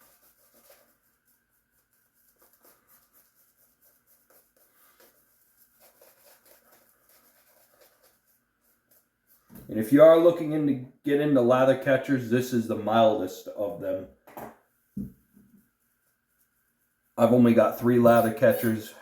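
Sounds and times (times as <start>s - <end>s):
shaving brush scratching on face: 0.0s - 9.5s, 15.5s - 19.0s.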